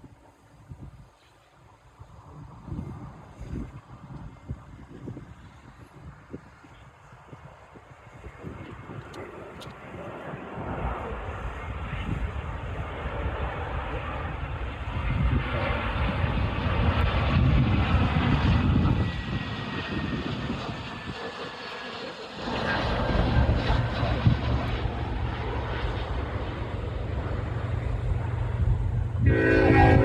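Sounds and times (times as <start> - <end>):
jet plane passing low: 0.0 - 30.0
steady low drone: 22.4 - 30.0.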